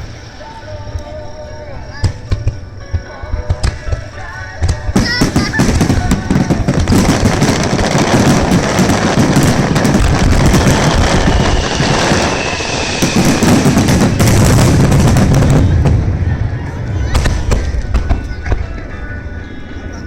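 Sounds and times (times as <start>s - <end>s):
fireworks bangs and crackles: 2.0s - 19.0s
low rumble: 8.2s - 19.7s.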